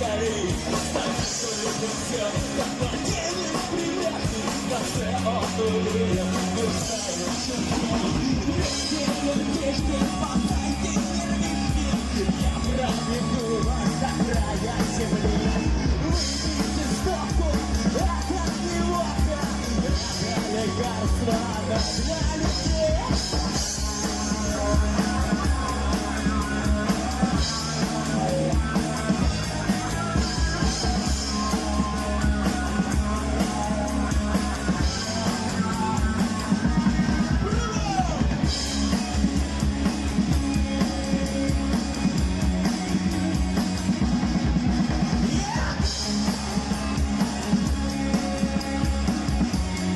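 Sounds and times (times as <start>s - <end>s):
person singing: 0.0s - 44.2s
rock band playing: 0.0s - 49.9s.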